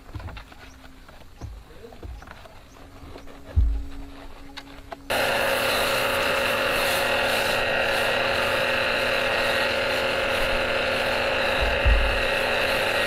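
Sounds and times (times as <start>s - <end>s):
machine running with whine: 3.0s - 13.0s.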